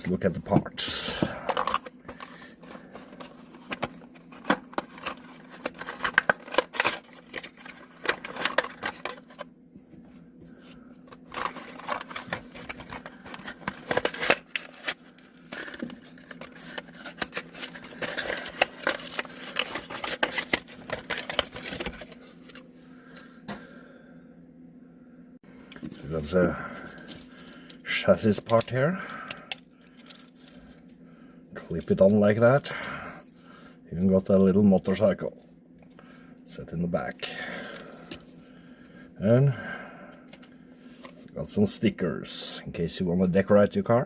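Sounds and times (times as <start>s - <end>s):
plastic packaging crinkling: 1.4s - 9.5s, 11.1s - 22.6s.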